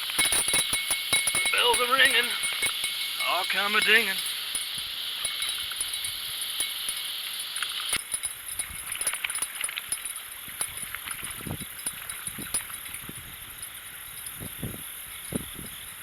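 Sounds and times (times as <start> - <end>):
steady high hiss: 0.0 - 16.0
fishing reel clicking: 0.2 - 15.9.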